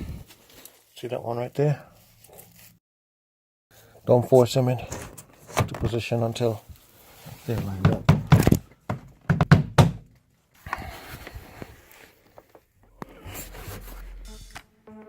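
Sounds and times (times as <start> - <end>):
soft handling noise: 0.0 - 2.8, 4.7 - 8.8.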